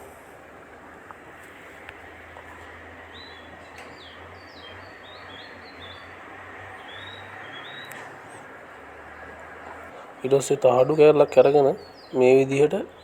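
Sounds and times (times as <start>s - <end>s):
steady low hum: 0.0s - 13.0s
small bird chirping: 3.1s - 6.2s, 6.8s - 8.1s, 10.8s - 13.0s.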